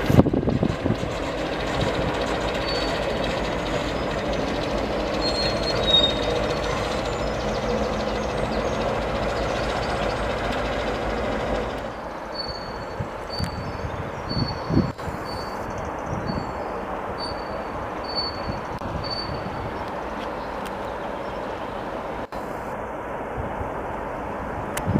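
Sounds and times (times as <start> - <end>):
train rumbling past: 0.0 - 24.9.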